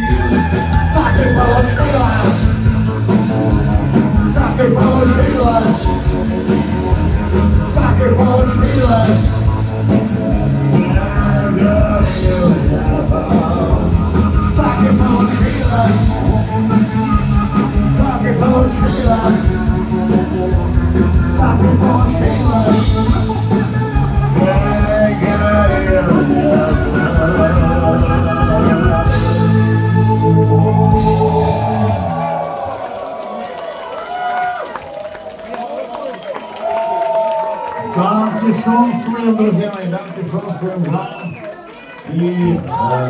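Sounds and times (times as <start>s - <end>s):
person singing: 0.0s - 2.7s, 3.9s - 9.7s, 10.3s - 32.0s
rock band playing live: 0.0s - 32.4s.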